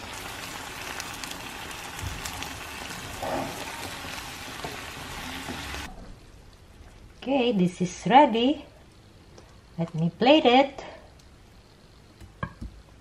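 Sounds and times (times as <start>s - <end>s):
food sizzling in a frying pan: 0.0s - 6.0s.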